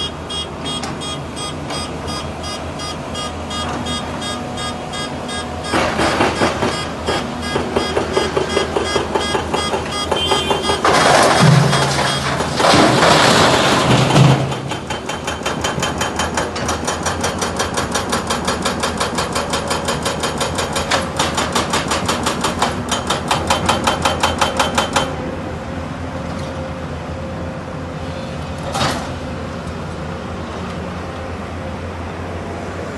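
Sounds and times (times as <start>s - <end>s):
excavator engine hum: 0.0s - 32.9s
rapid sharp knocks: 5.7s - 10.9s.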